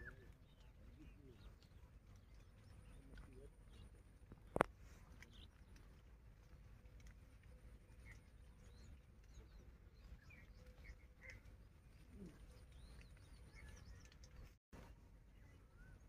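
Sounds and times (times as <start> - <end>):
faint bird chirps: 7.5 - 14.6.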